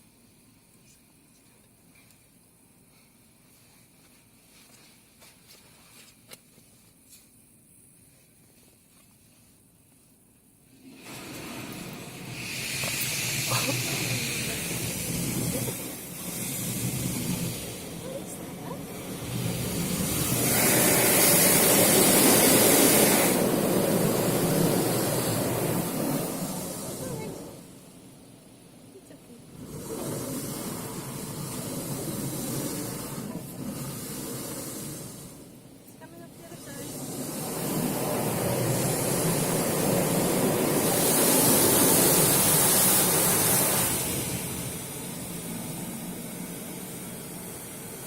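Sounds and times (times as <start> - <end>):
car wash water jets spraying: 10.7 - 48.0.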